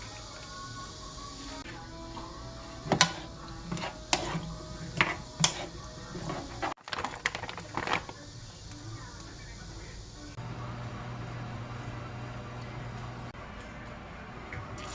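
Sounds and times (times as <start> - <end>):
utensils clicking against dishes: 1.6 - 8.8.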